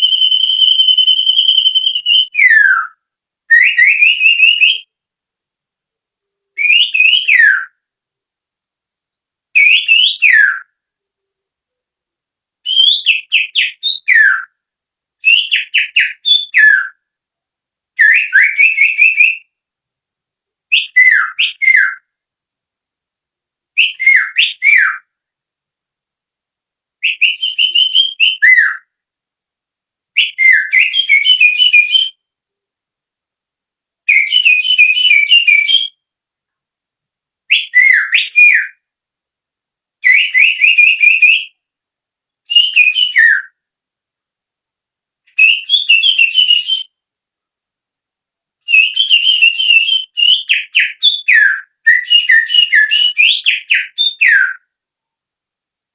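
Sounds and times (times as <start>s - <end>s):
person whistling birdsong: 0.0s - 4.9s, 27.0s - 28.9s, 42.5s - 43.6s, 45.3s - 47.0s, 48.7s - 54.7s.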